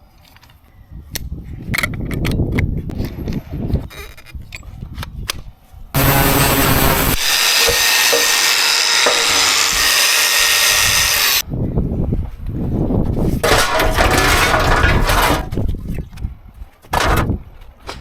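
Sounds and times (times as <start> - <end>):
cutting and breaking noise: 6.0 - 11.4, 13.4 - 15.6
power tool cutting metal: 6.0 - 11.4.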